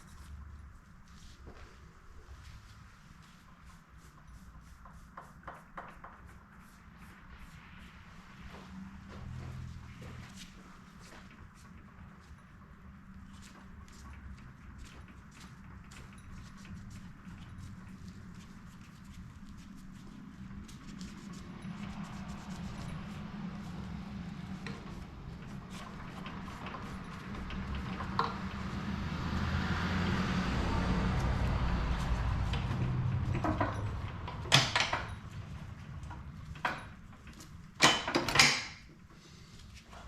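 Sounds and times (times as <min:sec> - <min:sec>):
tools clicking and knocking: 0:32.3 - 0:35.4, 0:36.0 - 0:38.9.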